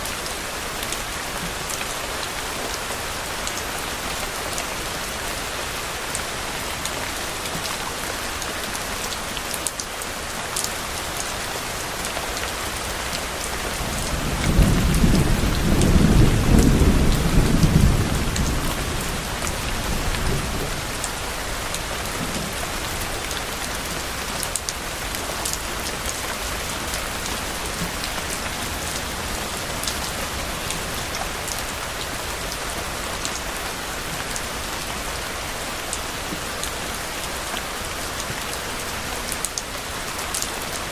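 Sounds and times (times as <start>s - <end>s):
steady rain: 0.0s - 40.9s
thunder rumbling: 13.8s - 23.1s.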